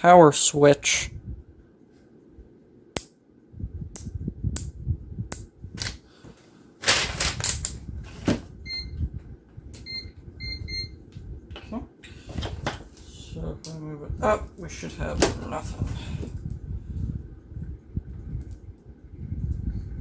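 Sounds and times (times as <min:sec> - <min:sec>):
multimeter beeps: 0:08.6 - 0:09.0, 0:09.8 - 0:11.0.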